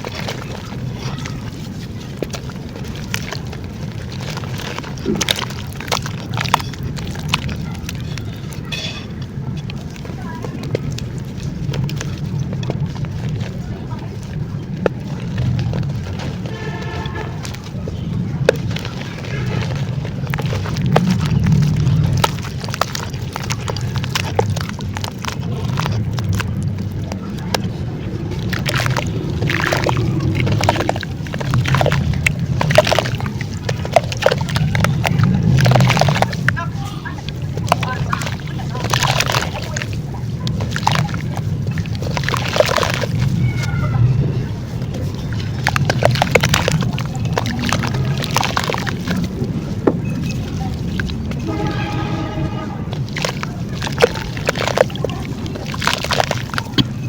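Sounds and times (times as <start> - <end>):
dried clay crumbling: 0.0 - 57.0
low wet sloshing: 0.0 - 57.0
low rumble: 11.0 - 37.6, 43.0 - 57.0.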